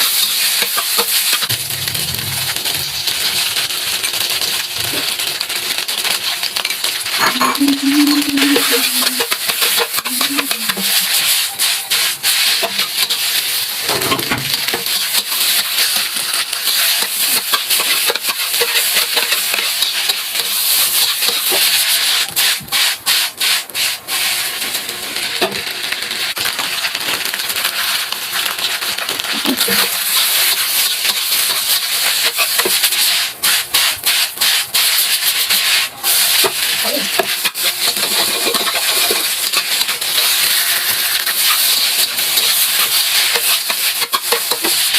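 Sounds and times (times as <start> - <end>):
fried rice sizzling in pan: 0.0 - 44.9
spatula scraping pan: 7.2 - 13.2, 29.4 - 44.9.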